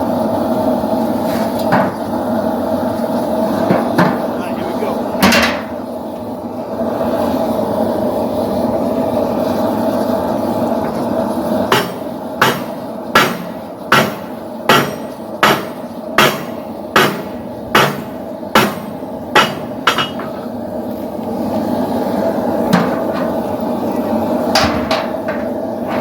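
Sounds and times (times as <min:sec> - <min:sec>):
steady rushing noise: 0:00.0 - 0:26.0
hammer striking steel on anvil: 0:11.7 - 0:20.4.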